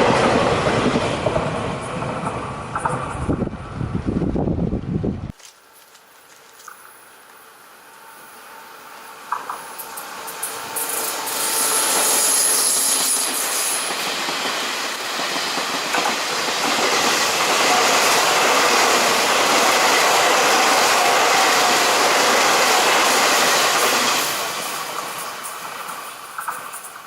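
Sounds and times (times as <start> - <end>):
train wheels rushing on rails: 0.0 - 4.0, 7.9 - 27.0.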